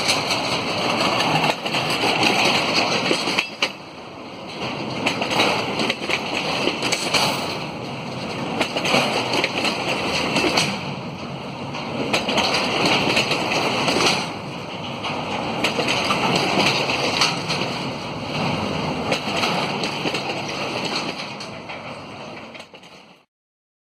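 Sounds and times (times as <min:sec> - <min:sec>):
train wheels clattering on rails: 0:00.0 - 0:23.3.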